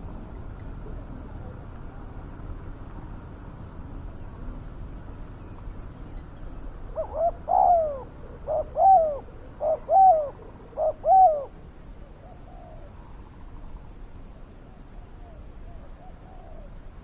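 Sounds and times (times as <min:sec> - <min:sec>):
dove cooing: 0:06.9 - 0:13.1, 0:15.2 - 0:16.8.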